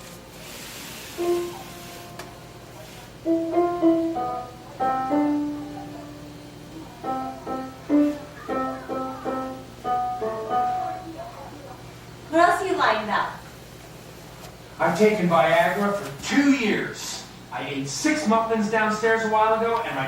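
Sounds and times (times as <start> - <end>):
slow piano music: 1.2 - 11.5.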